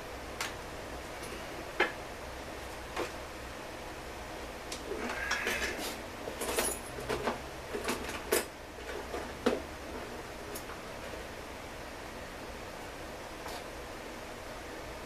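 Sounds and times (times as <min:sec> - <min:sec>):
metal tools clinking: 0:06.4 - 0:07.0.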